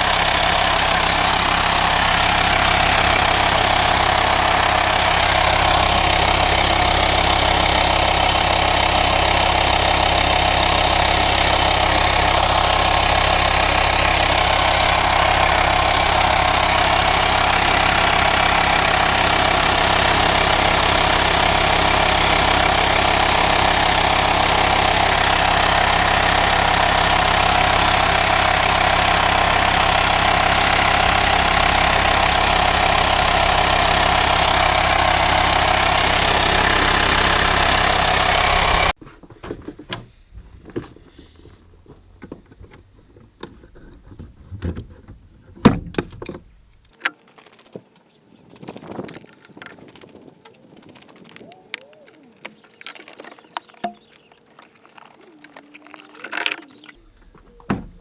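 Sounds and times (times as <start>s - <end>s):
diesel engine idling: 0.0s - 39.0s, 48.2s - 57.0s
engine bay hiss: 0.0s - 39.0s.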